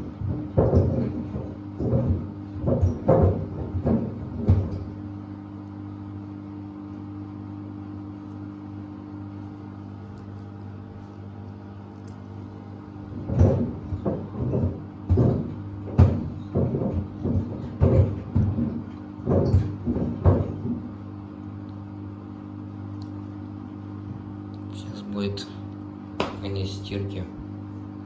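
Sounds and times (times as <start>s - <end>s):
heavy thuds in drum: 0.0s - 5.0s, 13.0s - 20.9s
washing machine hum: 0.0s - 28.0s.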